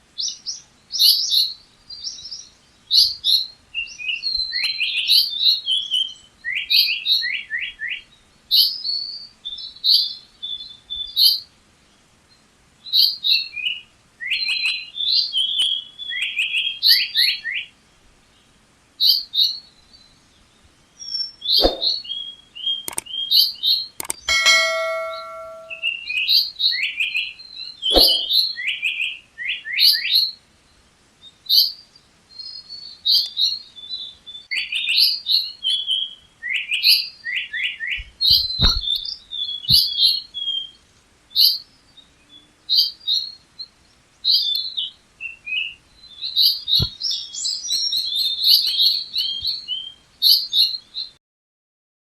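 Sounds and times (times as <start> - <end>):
songbird singing: 19.1 - 25.9, 27.3 - 30.3.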